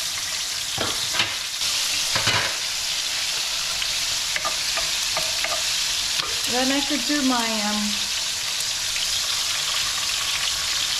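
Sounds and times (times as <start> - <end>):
stirring strokes in a wok: 0.0 - 6.5
onion sizzling in hot oil: 0.0 - 10.9.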